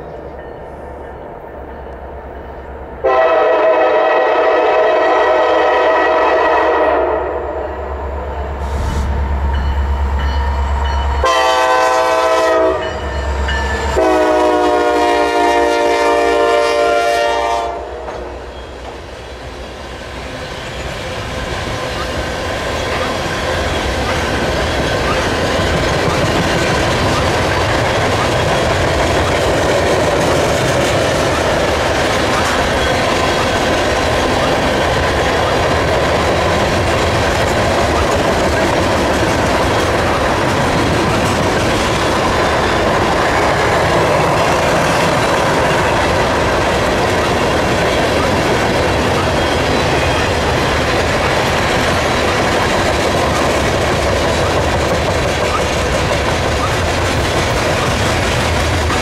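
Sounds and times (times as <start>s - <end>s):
train horn blasts: 3.0s - 8.0s, 11.2s - 18.1s
train wheels clattering over rail joints: 20.8s - 59.0s.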